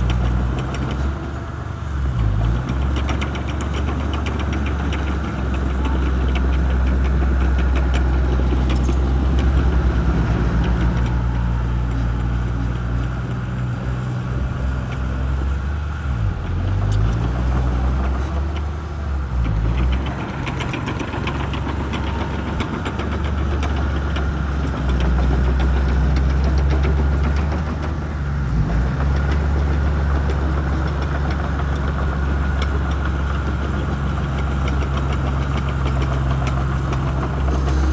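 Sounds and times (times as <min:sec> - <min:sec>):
bulldozer diesel engine running: 0:00.0 - 0:37.9.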